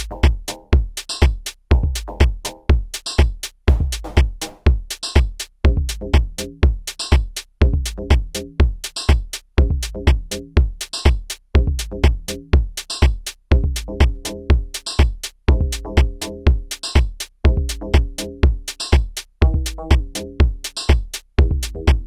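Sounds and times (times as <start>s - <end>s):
open hi-hat or cymbal: 0.0s - 5.6s, 10.3s - 11.4s, 12.3s - 21.8s
deep kick drums: 0.0s - 22.0s
drum machine pattern: 0.0s - 22.0s.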